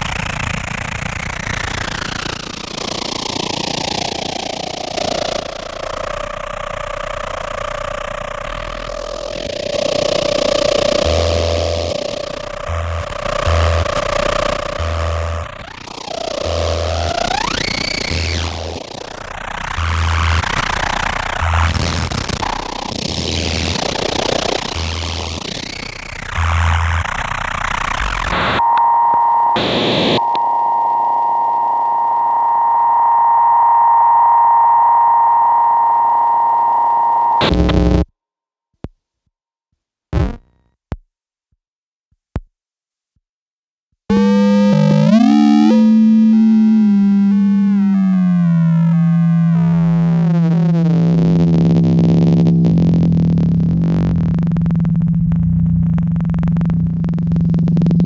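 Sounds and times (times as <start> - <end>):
held synth tone with noise: 28.0 - 38.0, 44.1 - 58.0
falling pitch glides: 28.3 - 38.0, 44.1 - 58.0
isolated clicks: 28.3 - 38.0
low synth drone: 28.3 - 38.0, 44.1 - 58.0.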